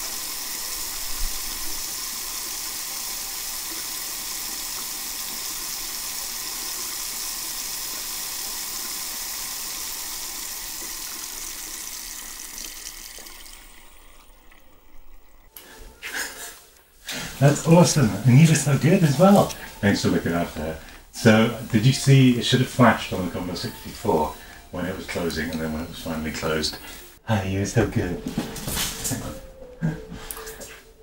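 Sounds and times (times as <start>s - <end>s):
tap water running into sink: 0.0s - 15.5s, 17.4s - 26.6s.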